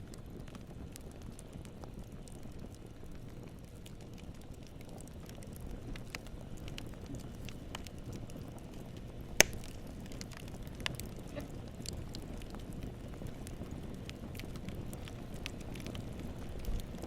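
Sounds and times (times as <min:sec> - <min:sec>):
campfire crackling: 0:00.0 - 0:17.0
flames rumbling: 0:00.0 - 0:17.0
loud sharp fire pop: 0:09.4 - 0:09.8.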